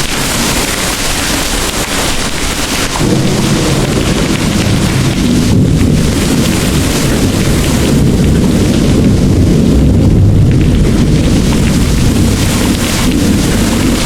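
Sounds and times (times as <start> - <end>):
heavy rain pouring: 0.0 - 14.0
distant thunder rumbling: 2.9 - 14.0.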